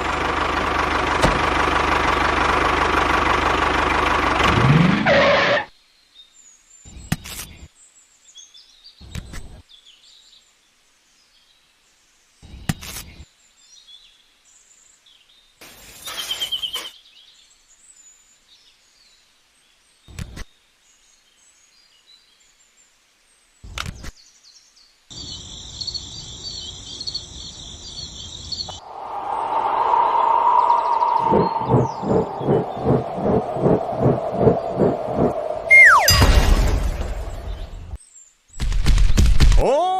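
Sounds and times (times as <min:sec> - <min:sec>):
faint birds chirping: 0:05.8 - 0:38.6
fast-pulsing high tone: 0:28.9 - 0:36.4.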